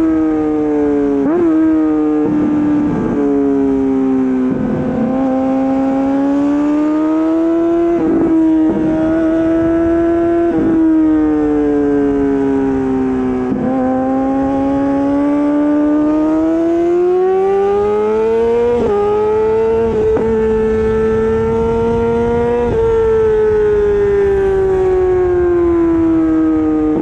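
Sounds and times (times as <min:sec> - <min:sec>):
motorcycle engine at high revs: 0:00.0 - 0:27.0.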